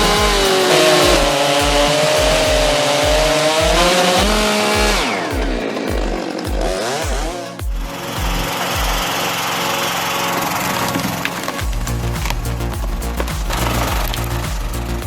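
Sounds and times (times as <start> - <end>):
chainsaw running at high revs: 0.0 - 7.4
background music with low beat: 0.0 - 9.5, 10.9 - 15.0.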